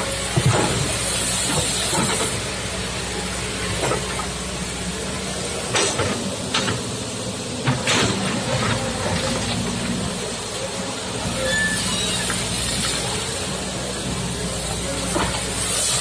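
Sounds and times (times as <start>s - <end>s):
excavator diesel engine running: 0.0s - 16.0s
hiss: 0.0s - 16.0s
sharp knocks and clanks: 5.7s - 6.8s.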